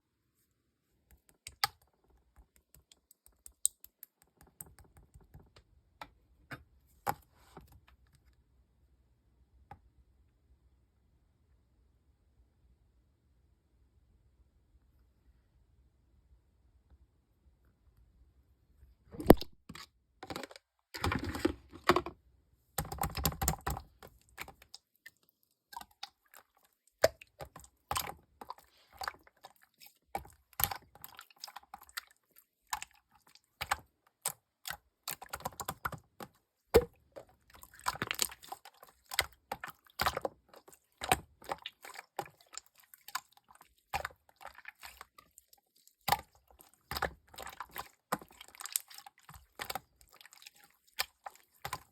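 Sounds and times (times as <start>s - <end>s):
slime squishing with sticky pops: 22.8s - 51.9s.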